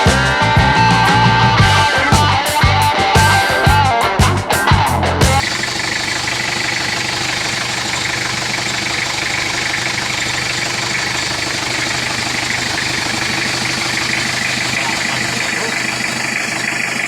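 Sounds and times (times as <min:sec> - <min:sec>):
diesel engine idling: 0:04.8 - 0:17.0.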